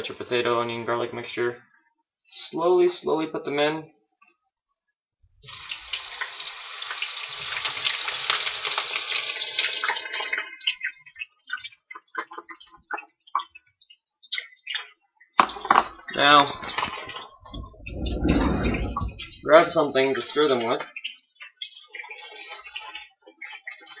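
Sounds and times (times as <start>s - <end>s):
vegetables sizzling in a frying pan: 5.4s - 10.4s
pops and crackles of frying food: 5.4s - 24.0s.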